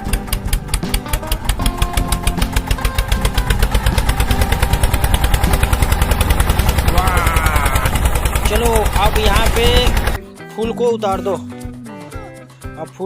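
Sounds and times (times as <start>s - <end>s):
tractor engine chugging: 0.0s - 10.2s.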